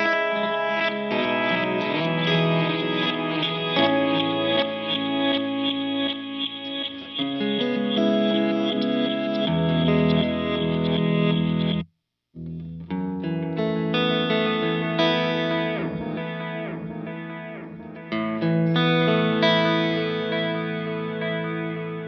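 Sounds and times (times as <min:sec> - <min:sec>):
electric guitar with delay and reverb: 0:00.0 - 0:22.0.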